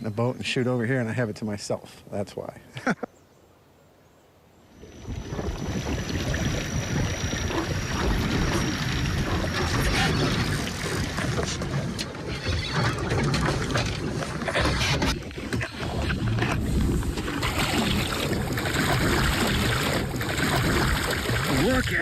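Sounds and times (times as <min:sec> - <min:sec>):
water rushing: 0:04.7 - 0:22.0
wind buffeting microphone: 0:04.8 - 0:12.3, 0:13.0 - 0:22.0.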